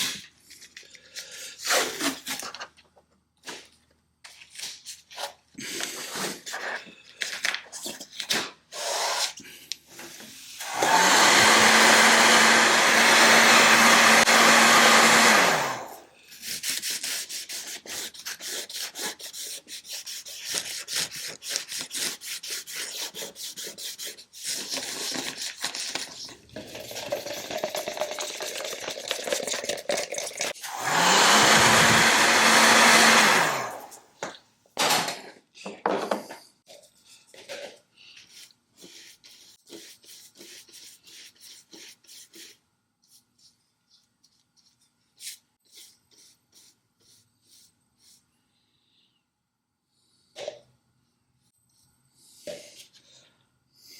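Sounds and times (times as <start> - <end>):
power tool motor spinning: 30.7 - 34.0.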